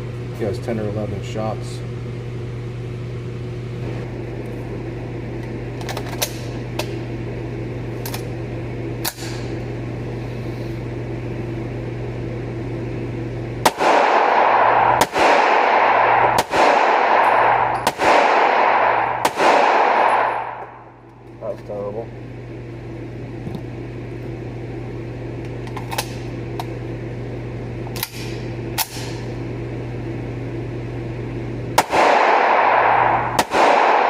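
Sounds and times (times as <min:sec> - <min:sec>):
steady low hum: 0:00.0 - 0:34.0
gunshots: 0:13.6 - 0:20.8, 0:31.8 - 0:34.0.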